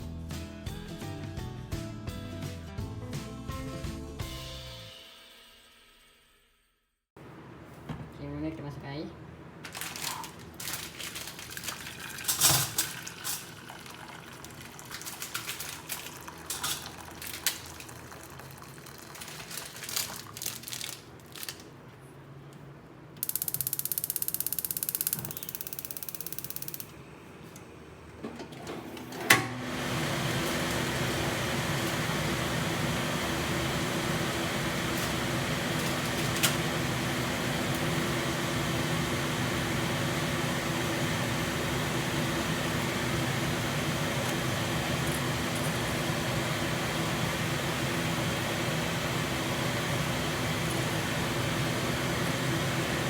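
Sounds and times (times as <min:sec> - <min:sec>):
kitchen exhaust fan droning: 0:07.2 - 0:53.0.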